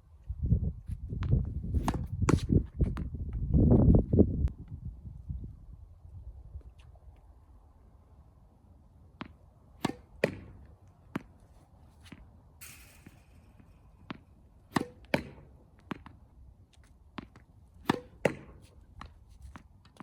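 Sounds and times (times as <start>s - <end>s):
racket striking tennis ball: 1.8s - 2.4s, 9.2s - 11.3s, 12.0s - 16.2s, 17.2s - 18.8s
tennis ball bouncing on court: 9.2s - 11.3s, 12.1s - 16.2s, 17.1s - 19.1s.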